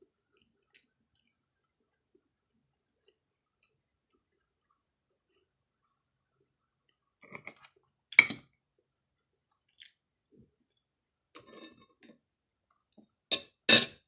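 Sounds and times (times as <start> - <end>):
chewing and mouth sounds: 2.9 - 6.0, 9.6 - 10.0.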